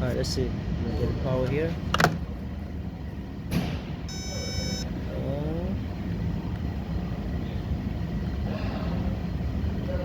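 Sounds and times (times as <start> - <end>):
steady low hum: 0.0 - 10.0
electronic beep: 4.1 - 4.9.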